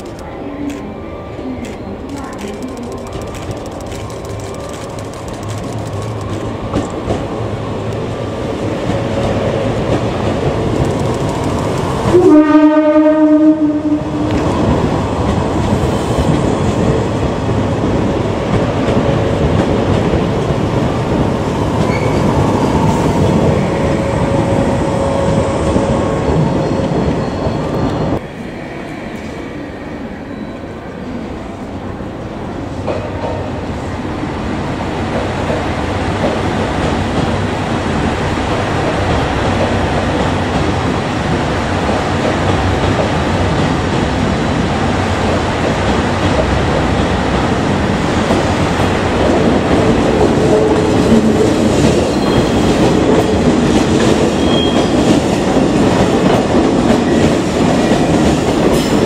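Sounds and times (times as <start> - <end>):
electric train running past: 0.0 - 59.0
train horn: 12.1 - 14.4.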